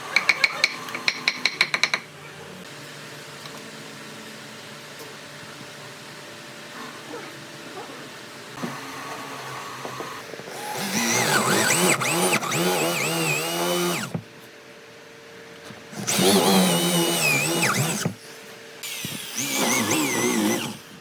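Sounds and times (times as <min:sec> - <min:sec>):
electric power tool working wood: 0:08.6 - 0:14.2, 0:16.0 - 0:18.2, 0:18.8 - 0:21.0.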